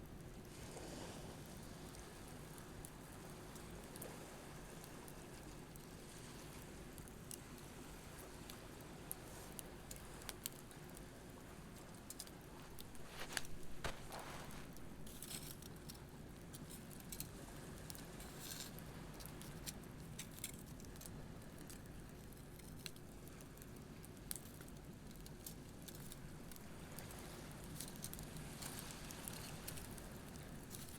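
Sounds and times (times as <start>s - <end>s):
faint waves: 0.4s - 15.7s
campfire crackling and popping: 6.6s - 30.9s.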